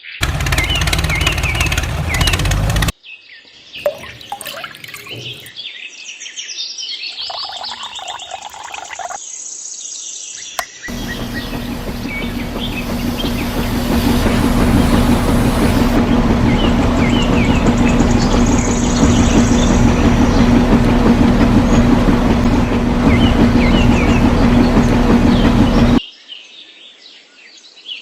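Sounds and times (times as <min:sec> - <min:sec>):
birds chirping: 0:00.0 - 0:02.9, 0:07.1 - 0:09.2, 0:10.4 - 0:26.0
clicking mechanical rush: 0:00.0 - 0:02.9, 0:10.9 - 0:26.0
low steady mechanical hum: 0:10.9 - 0:26.0.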